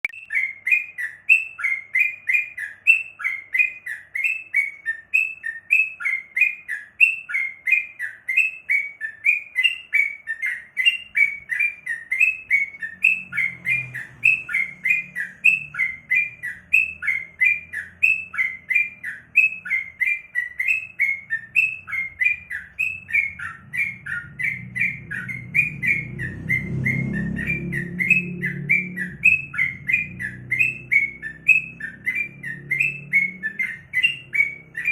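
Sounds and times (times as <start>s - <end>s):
bulbul chirping: 0.0s - 34.9s
faint low rumble: 21.4s - 34.9s.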